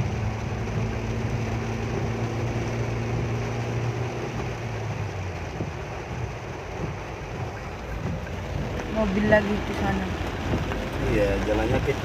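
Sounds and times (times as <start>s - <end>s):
heavy rain: 0.0s - 12.0s
road noise: 0.0s - 12.0s
vehicle engine low hum: 0.0s - 12.0s.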